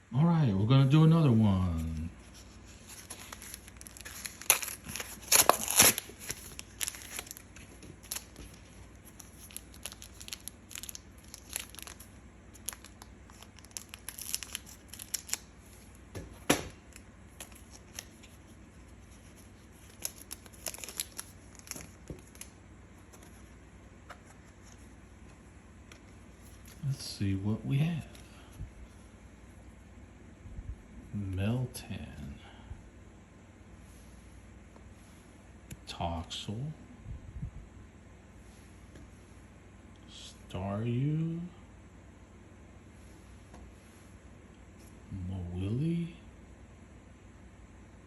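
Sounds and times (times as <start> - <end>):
wrapper crinkling and rustling: 2.3 - 16.0, 19.1 - 22.6
foil wrapper tearing: 2.8 - 15.5, 19.8 - 22.5.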